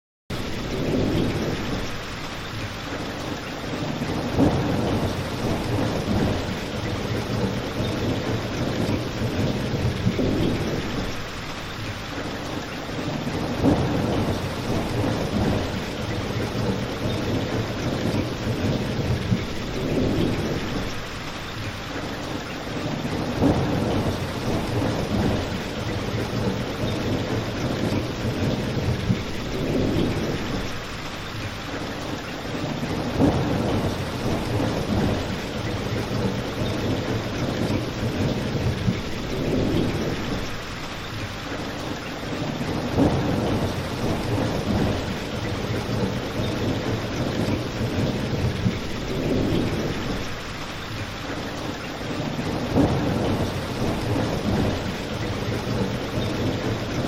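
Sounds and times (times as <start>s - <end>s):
steady rain falling: 0.3s - 57.0s.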